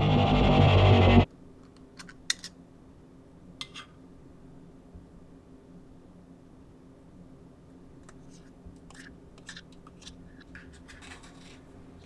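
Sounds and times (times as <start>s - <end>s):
faint low room hum: 1.0s - 12.0s
clicks and scrapes of objects handled: 8.0s - 12.0s.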